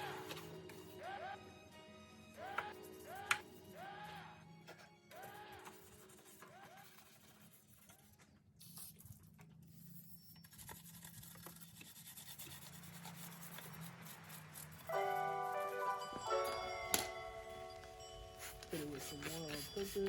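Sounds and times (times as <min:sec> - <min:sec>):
brush scrubbing: 0:10.5 - 0:15.2, 0:18.3 - 0:20.0
chiming music notes: 0:14.9 - 0:20.0.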